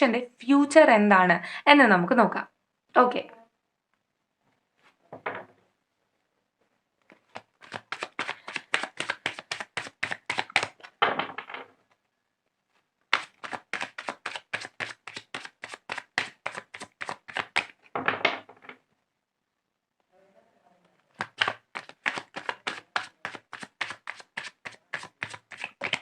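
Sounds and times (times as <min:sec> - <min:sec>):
cards being shuffled: 0:07.0 - 0:11.0, 0:13.1 - 0:17.9, 0:21.1 - 0:26.0.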